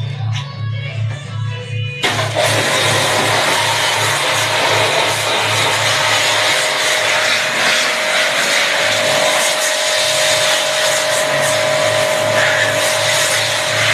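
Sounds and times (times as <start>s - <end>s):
steady whine: 0.0s - 13.9s
machine hissing and throbbing: 2.0s - 13.9s.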